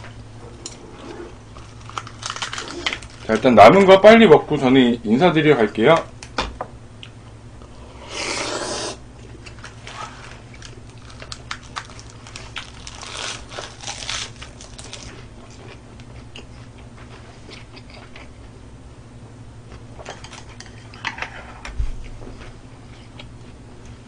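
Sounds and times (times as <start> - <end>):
chewing and crunching lettuce: 1.0 - 3.9, 9.2 - 18.5.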